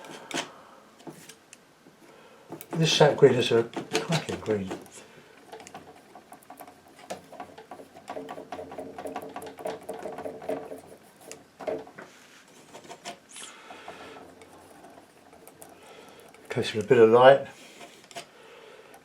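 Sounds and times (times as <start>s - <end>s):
painting knife scraping and tapping: 2.5s - 16.9s, 17.6s - 18.3s.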